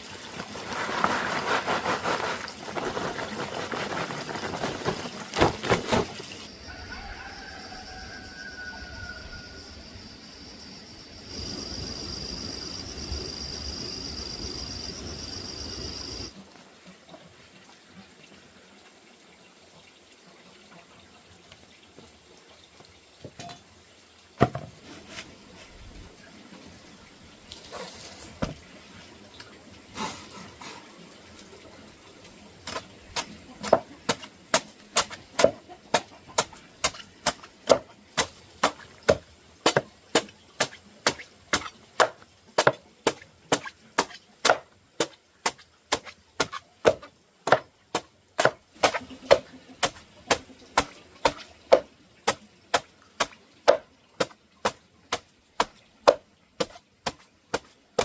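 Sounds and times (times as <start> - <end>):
blade chopping wood: 33.6 - 52.4.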